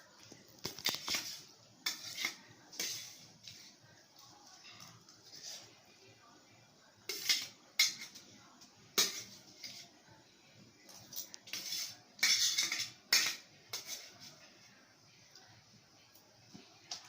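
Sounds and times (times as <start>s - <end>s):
cutlery clinking and scraping on dish: 0.6s - 3.7s, 7.1s - 8.2s, 8.9s - 9.9s, 10.9s - 14.4s.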